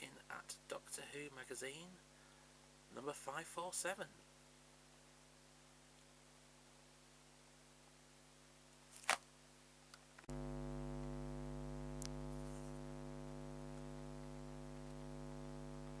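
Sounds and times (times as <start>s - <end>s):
steady electrical hum: 3.8s - 16.0s.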